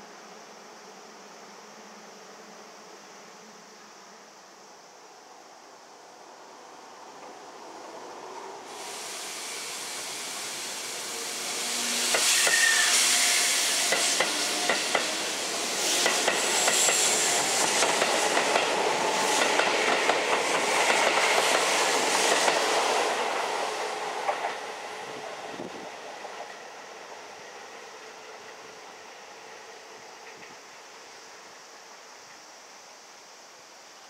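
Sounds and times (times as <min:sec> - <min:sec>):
electric train passing: 0:00.0 - 0:32.6
train wheels clacking on rail joints: 0:12.0 - 0:12.8, 0:13.8 - 0:23.5, 0:24.2 - 0:24.7.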